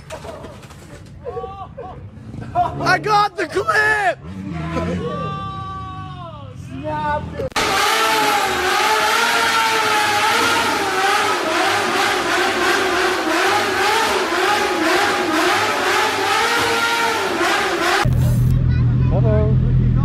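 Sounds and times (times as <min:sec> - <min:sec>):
motorcycle engine revving high: 0:07.5 - 0:18.5.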